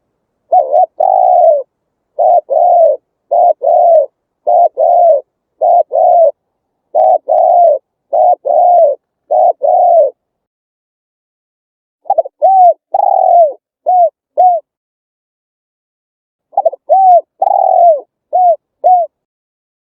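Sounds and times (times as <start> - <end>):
dove cooing: 0.0 - 10.2, 12.0 - 14.7, 16.5 - 19.2.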